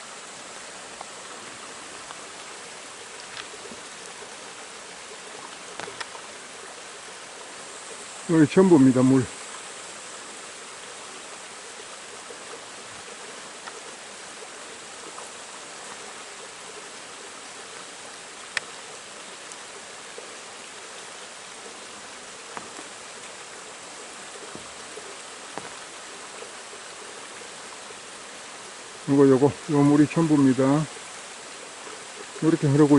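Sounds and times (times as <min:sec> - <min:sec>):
stream flowing over rocks: 0:00.0 - 0:32.9
faint clicks: 0:00.9 - 0:02.2, 0:03.2 - 0:04.2, 0:05.4 - 0:06.3, 0:13.6 - 0:13.9, 0:17.7 - 0:18.8, 0:19.4 - 0:19.7, 0:22.4 - 0:23.3.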